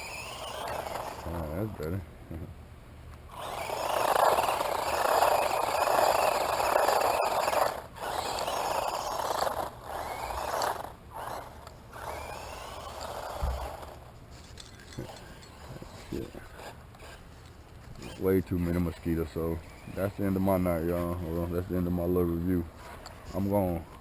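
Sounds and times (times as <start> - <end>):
rc car motor and tyres rushing: 0.0 - 2.0, 3.3 - 24.0
faint motor whine: 0.0 - 24.0.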